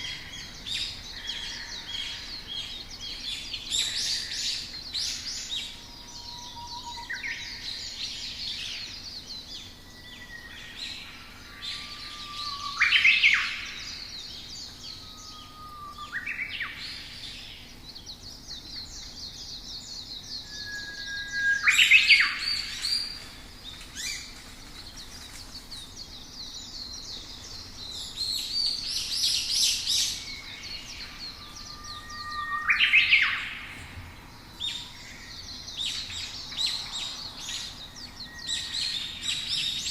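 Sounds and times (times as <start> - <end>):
songbirds chirping: 0.0 - 39.9
bird whistle with rising notes: 20.4 - 22.9, 30.0 - 37.2.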